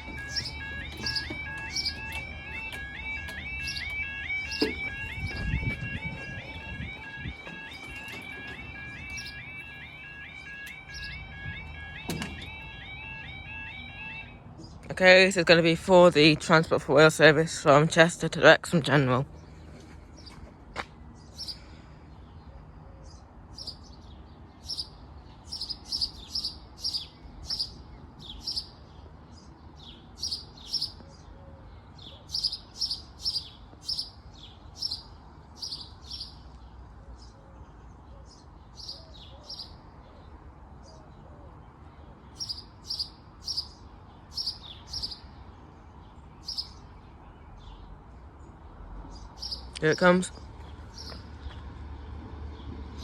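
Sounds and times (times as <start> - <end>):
small songbird chirping: 0.0 - 5.8, 23.1 - 40.3, 42.1 - 51.6.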